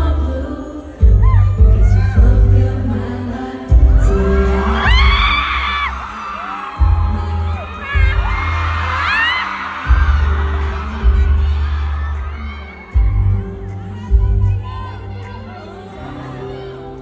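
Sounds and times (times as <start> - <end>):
live pop song through speakers: 0.0 - 17.0
heavy bass and kick drum: 1.0 - 3.0, 3.7 - 6.1, 6.8 - 9.3, 9.9 - 12.4, 13.0 - 14.9.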